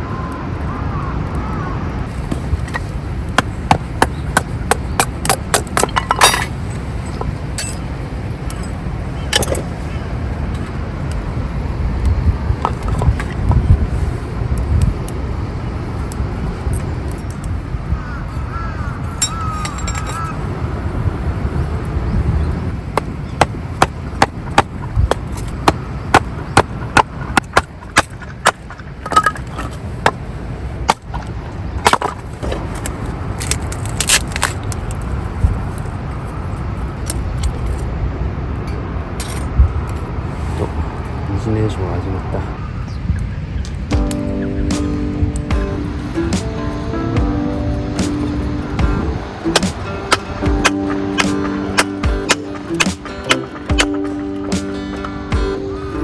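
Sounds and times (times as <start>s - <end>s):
steady low rumble: 0.0s - 19.1s, 34.7s - 56.0s.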